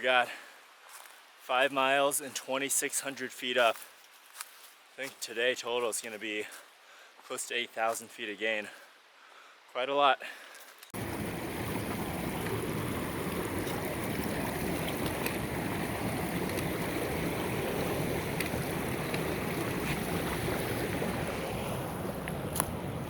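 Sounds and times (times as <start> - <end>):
wind buffeting microphone: 11.0 - 23.0.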